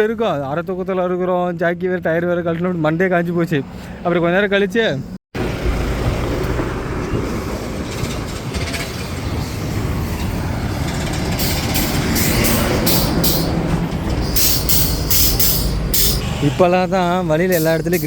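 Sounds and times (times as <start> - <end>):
heavy vehicle rumbling and rattling: 5.4 - 18.0
short sharp air hisses: 11.4 - 13.6, 14.2 - 16.4.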